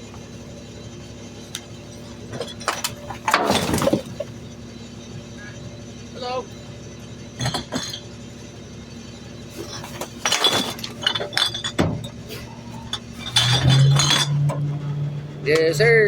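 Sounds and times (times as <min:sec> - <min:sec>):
steady low hum: 0:00.0 - 0:16.0
trash clattering into truck hopper: 0:02.0 - 0:04.6, 0:07.4 - 0:08.1, 0:09.5 - 0:15.6
glass clinking: 0:09.7 - 0:14.6.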